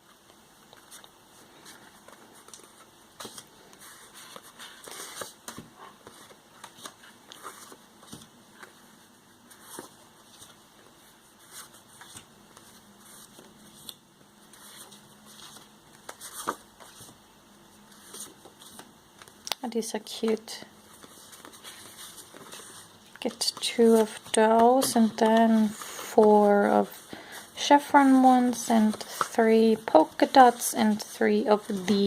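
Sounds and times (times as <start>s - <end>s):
card stock rustling and tapping: 0.7s - 8.8s, 20.1s - 26.2s.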